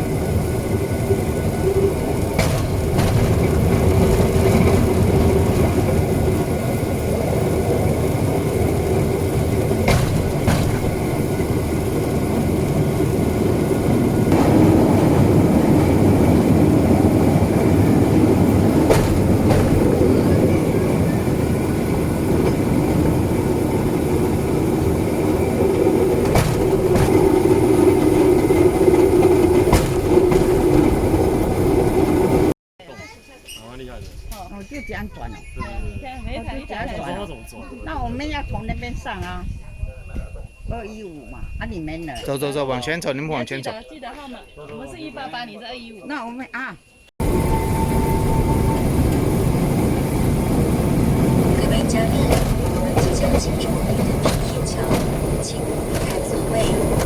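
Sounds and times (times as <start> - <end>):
rail vehicle rolling on track: 0.0 - 43.8, 46.9 - 57.0
wheel clicks over rail joints: 0.7 - 32.5, 47.2 - 57.0.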